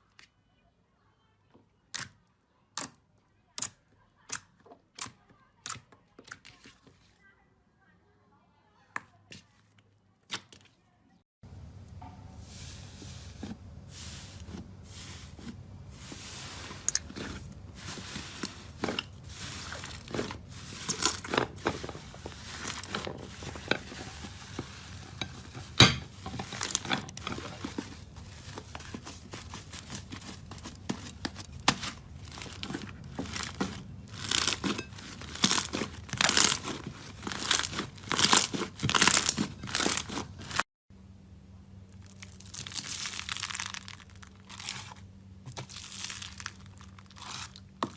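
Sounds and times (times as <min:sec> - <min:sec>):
slime crackling and popping: 0:29.4 - 0:40.2, 0:42.0 - 0:47.7.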